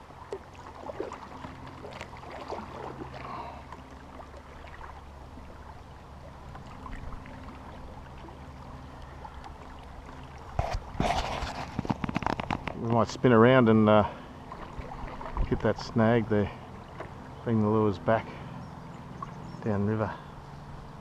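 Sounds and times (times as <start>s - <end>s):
paddle splashing in water: 0.0s - 12.8s, 14.1s - 15.6s, 16.5s - 17.4s
water trickling off paddle: 0.0s - 13.2s, 14.0s - 17.7s
steady low hum: 0.0s - 21.0s.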